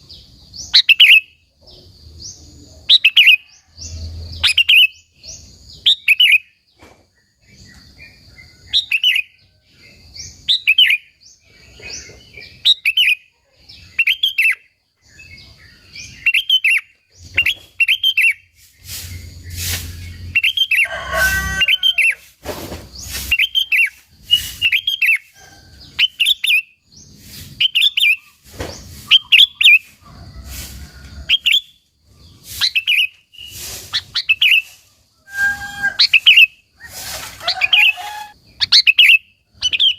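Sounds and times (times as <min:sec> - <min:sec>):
bulbul singing chirping phrases: 0:32.4 - 0:39.9.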